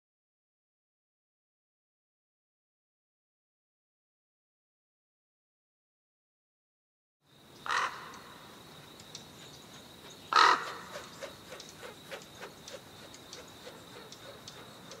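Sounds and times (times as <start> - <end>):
faint ticks: 7.5 - 10.2, 11.0 - 15.0
bird harsh calls: 7.6 - 15.0.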